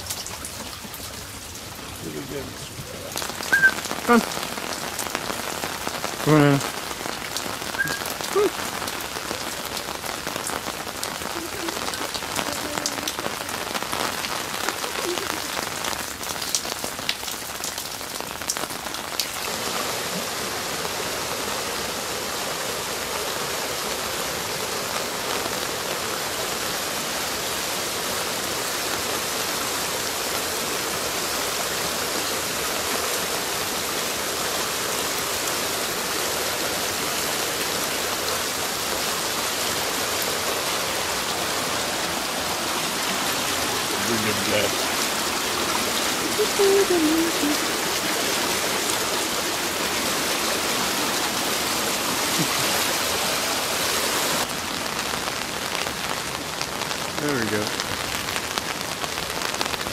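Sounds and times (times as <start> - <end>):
rain drop clicks: 0.0 - 19.5
floodwater rushing down a channel: 0.0 - 59.9
heavy rain on hard surfaces: 0.0 - 59.9.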